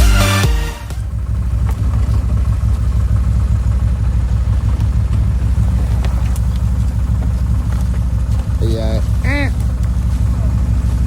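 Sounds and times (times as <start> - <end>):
intro music: 0.0 - 1.2
engine idling: 0.0 - 11.0.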